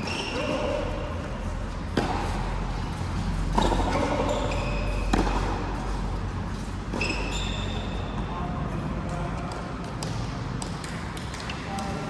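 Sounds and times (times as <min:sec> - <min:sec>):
shoes squeaking on court: 0:00.0 - 0:01.0, 0:01.9 - 0:08.3
racket striking ball: 0:01.9 - 0:02.3, 0:03.5 - 0:04.1, 0:05.0 - 0:05.9.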